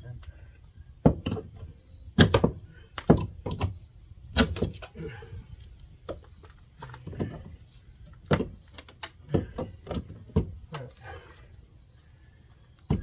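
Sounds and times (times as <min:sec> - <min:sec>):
knocks on wooden wall framing: 0:01.0 - 0:03.7, 0:08.2 - 0:08.6, 0:09.2 - 0:10.7.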